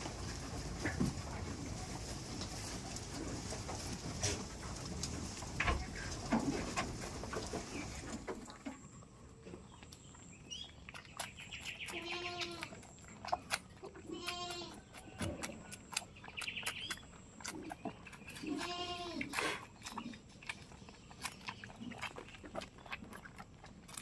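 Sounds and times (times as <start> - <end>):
goats bleating: 11.9 - 12.7, 14.0 - 14.8, 18.4 - 19.4.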